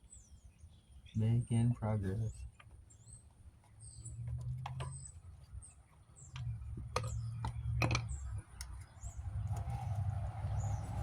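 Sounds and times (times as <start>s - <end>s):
vehicle passing: 6.4s - 11.0s.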